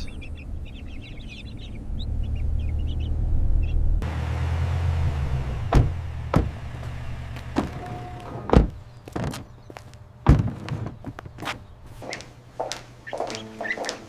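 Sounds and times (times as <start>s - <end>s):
ducklings peeping: 0.0s - 3.8s, 7.6s - 10.0s, 10.8s - 14.0s
car rumbling on the move: 0.0s - 9.7s
sharp knocks: 5.7s - 9.5s, 10.3s - 11.0s.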